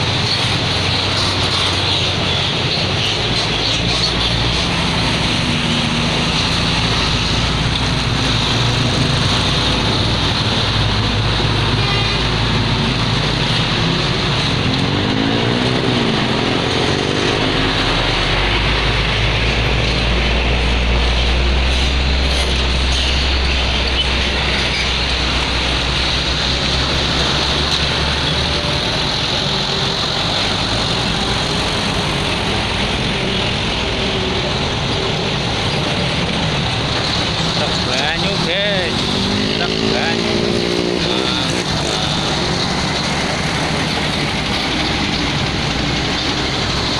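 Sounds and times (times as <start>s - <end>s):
heavy vehicle engine rumble: 0.0s - 46.9s
vehicle engine passing by: 37.5s - 46.9s.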